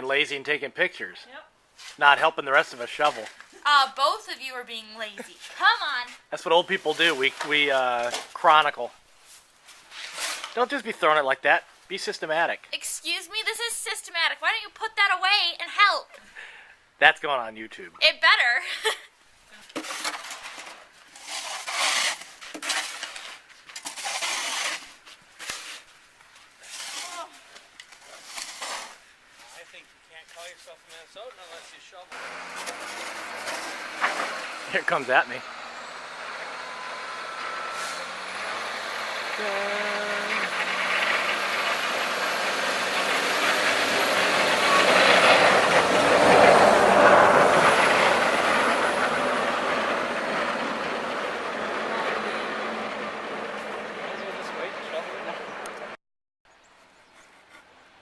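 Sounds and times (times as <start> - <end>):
snow shovels scraping: 1.8 - 11.0, 19.7 - 35.4, 37.7 - 49.8
heavy truck driving past: 32.1 - 56.0.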